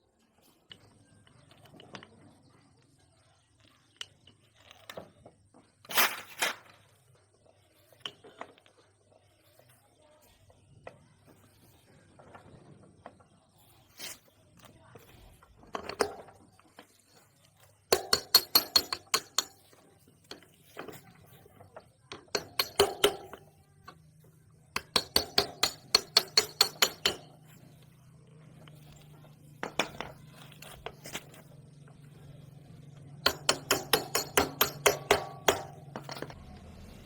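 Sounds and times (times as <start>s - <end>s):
rapid metal-on-metal taps: 17.9s - 21.0s, 22.1s - 27.6s, 28.6s - 32.2s, 32.9s - 36.4s.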